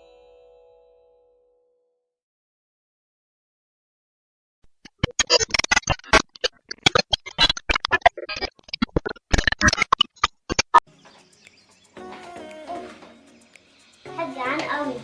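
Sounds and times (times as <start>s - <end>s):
sharp clicks and knocks: 4.7s - 11.2s.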